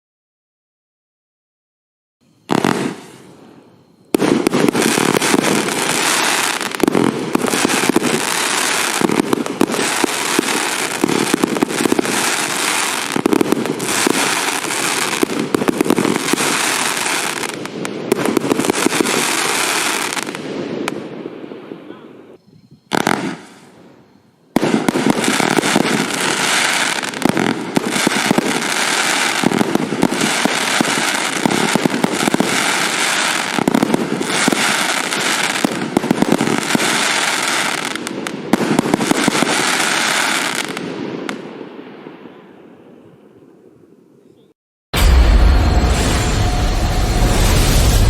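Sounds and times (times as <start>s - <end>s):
firework cake bangs and crackle: 2.5s - 21.1s, 24.6s - 41.5s, 45.0s - 48.0s.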